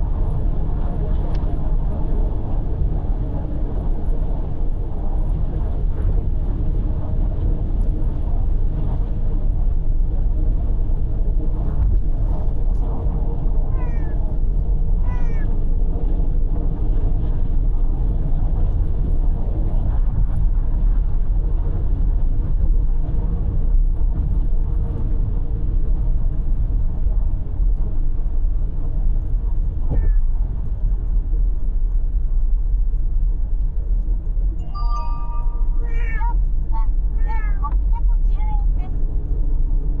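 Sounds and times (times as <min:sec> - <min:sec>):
car road and engine noise: 0:00.0 - 0:40.0
cat meowing: 0:13.7 - 0:14.2, 0:15.0 - 0:15.5, 0:35.2 - 0:36.4, 0:37.2 - 0:37.7.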